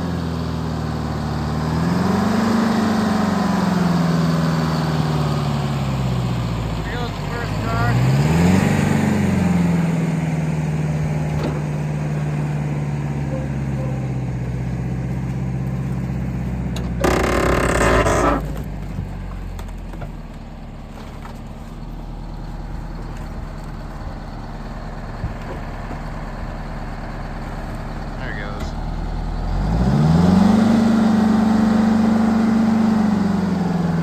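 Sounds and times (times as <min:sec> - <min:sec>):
diesel engine running: 0:00.0 - 0:34.0
loud harsh noise: 0:17.0 - 0:18.4.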